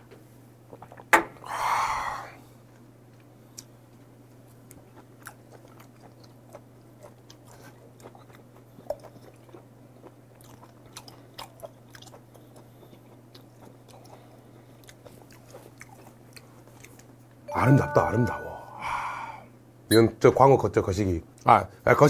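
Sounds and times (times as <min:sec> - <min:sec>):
wet mouth chewing clicks: 0:04.6 - 0:17.1
low hum: 0:17.5 - 0:19.5.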